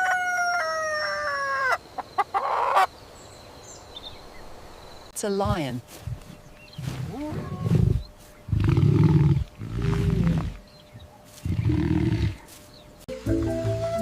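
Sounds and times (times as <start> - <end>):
lion roaring: 6.8 - 10.6, 11.4 - 12.5.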